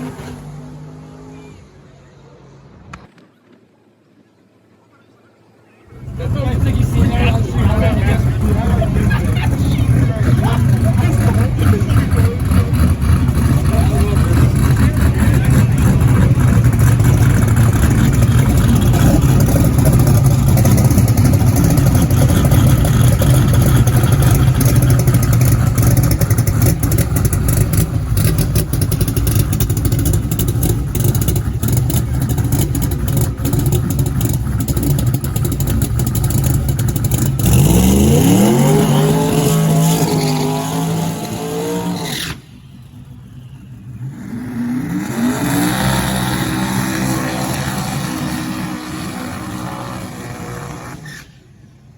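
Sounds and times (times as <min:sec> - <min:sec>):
drag racing car engine revving: 0:06.0 - 0:51.4.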